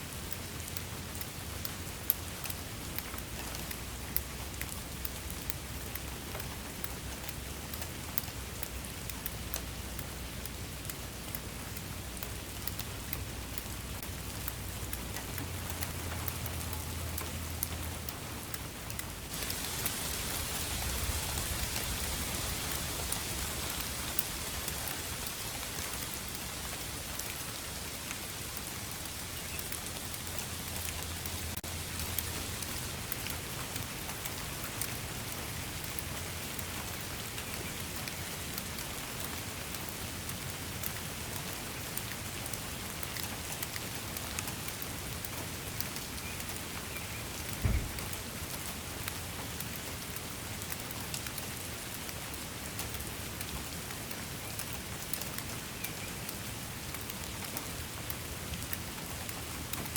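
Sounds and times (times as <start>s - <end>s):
rain falling: 0.0s - 59.9s
short low thump: 47.6s - 48.1s.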